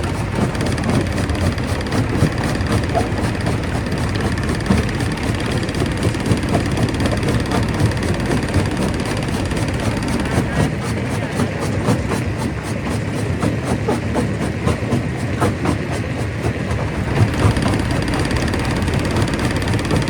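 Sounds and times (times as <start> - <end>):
stone crusher rumbling: 16.8 - 20.0.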